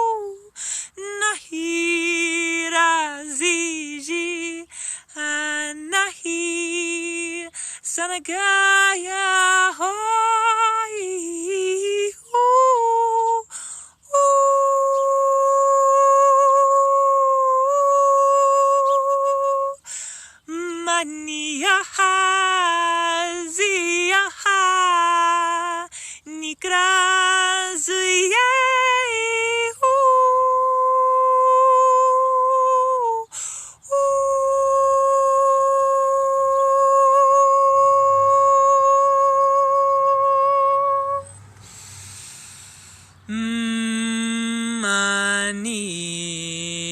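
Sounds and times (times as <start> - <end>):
woman singing without words: 0.0 - 46.9
breath in: 0.6 - 1.0, 4.7 - 5.1, 7.6 - 7.8, 13.5 - 14.0, 19.8 - 20.4, 33.3 - 33.8, 41.5 - 43.3
woman singing long note: 14.1 - 19.8, 33.9 - 41.3.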